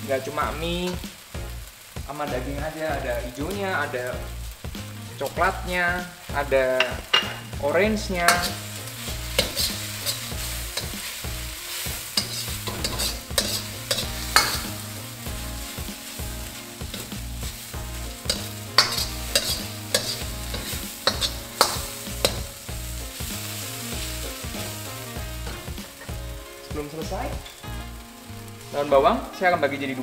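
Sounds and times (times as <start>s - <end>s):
noodles sizzling in a wok: 0.0s - 30.0s
metal ladle scraping a wok: 8.2s - 26.2s.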